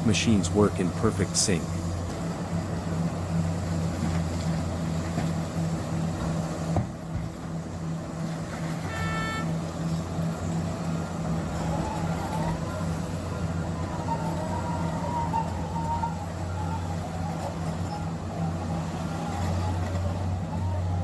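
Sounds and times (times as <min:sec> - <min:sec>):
heavy diesel engines droning: 0:00.0 - 0:21.0
short horn beep: 0:08.7 - 0:09.7.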